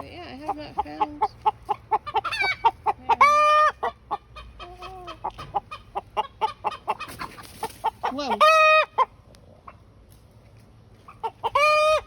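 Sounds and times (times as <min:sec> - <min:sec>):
chickens clucking rapidly: 0:00.3 - 0:09.8, 0:11.0 - 0:12.0.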